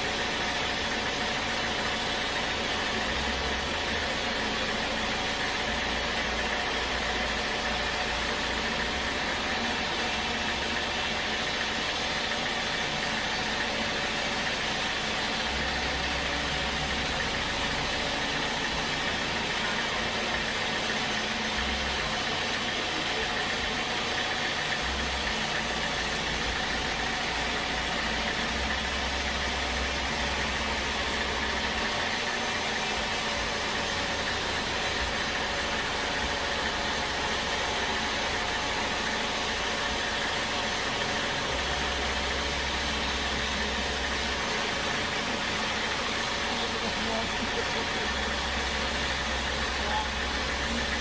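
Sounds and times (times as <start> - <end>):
sawmill machinery running: 0.0 - 51.0.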